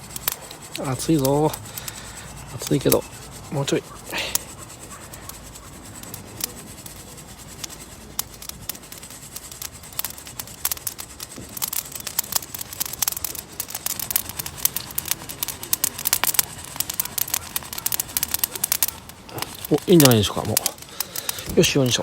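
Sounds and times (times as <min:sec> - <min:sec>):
coffee beans popping: 0:00.0 - 0:22.0.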